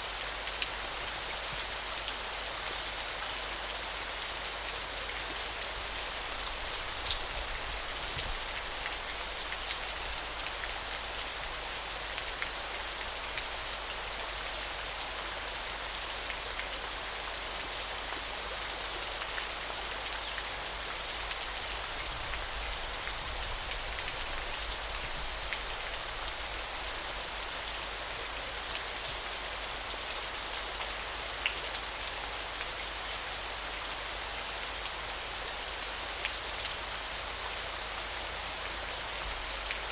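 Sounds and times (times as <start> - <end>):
running water hiss: 0.0 - 39.9
faint drips and ticks: 0.2 - 27.0.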